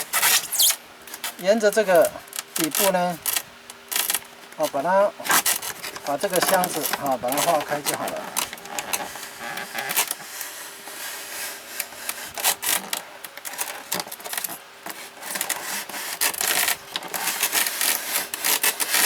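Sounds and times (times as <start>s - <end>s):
knife sawing through styrofoam: 0.0s - 0.8s, 1.5s - 3.2s, 4.8s - 12.9s, 13.6s - 19.0s.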